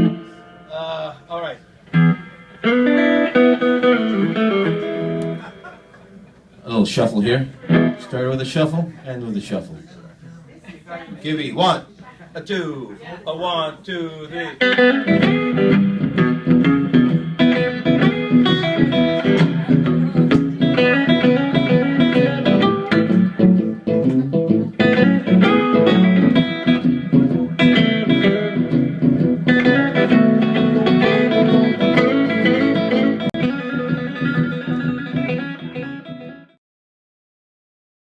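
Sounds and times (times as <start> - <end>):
guitar playing blues shuffle: 0.0 - 6.5, 7.4 - 8.7, 14.3 - 36.6.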